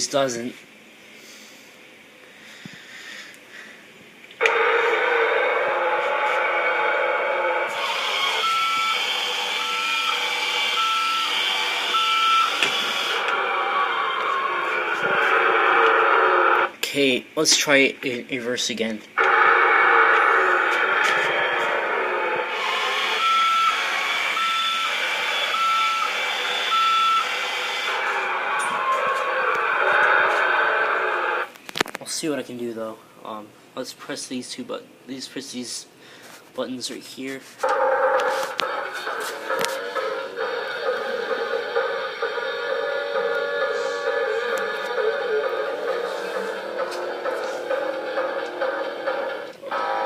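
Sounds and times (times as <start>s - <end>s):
toy electric motor whirring: 4.4s - 16.6s, 19.2s - 31.5s
reversing alarm beeps: 4.5s - 16.1s, 22.5s - 30.1s.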